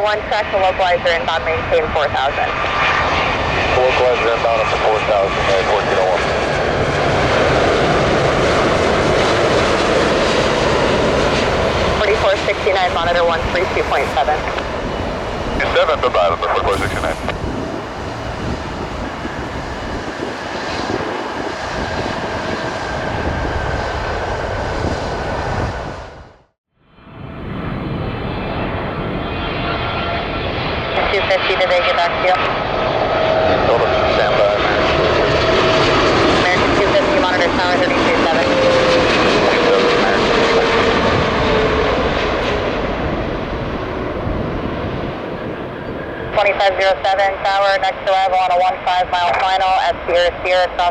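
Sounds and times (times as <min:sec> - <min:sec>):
jet airliner engines rushing: 0:00.0 - 0:50.9.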